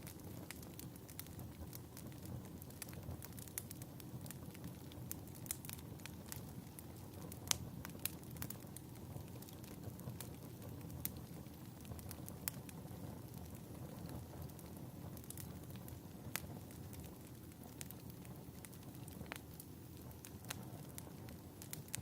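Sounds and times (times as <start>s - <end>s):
fire popping and snapping: 0.0s - 22.0s
low rush of burning fire: 0.0s - 22.0s.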